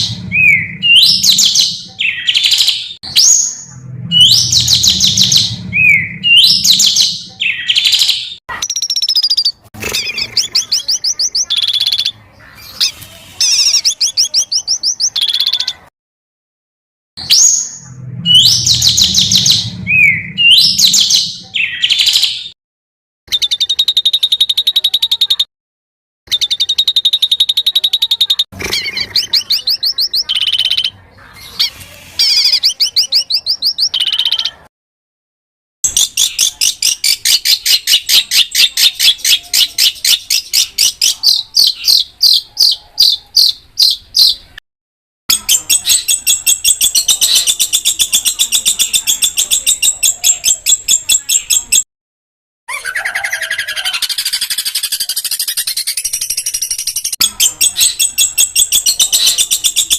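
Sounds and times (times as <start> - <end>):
songbird singing rapid high notes: 0.0 - 15.8.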